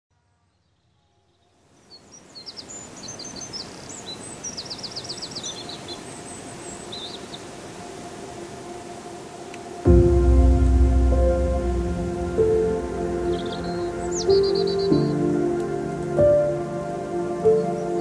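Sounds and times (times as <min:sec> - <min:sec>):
small birds chirping: 0:00.5 - 0:07.7, 0:12.5 - 0:18.0
steady background hiss: 0:00.5 - 0:18.0.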